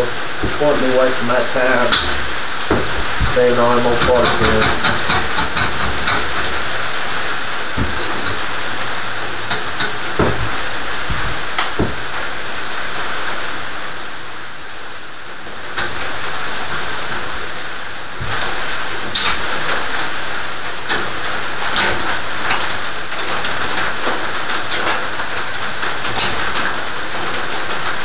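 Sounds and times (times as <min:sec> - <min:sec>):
heavy rain on a roof: 0:00.0 - 0:28.0
sharp clicks and knocks: 0:01.8 - 0:06.6, 0:07.8 - 0:08.5, 0:09.4 - 0:12.2, 0:19.1 - 0:19.8, 0:26.0 - 0:26.7.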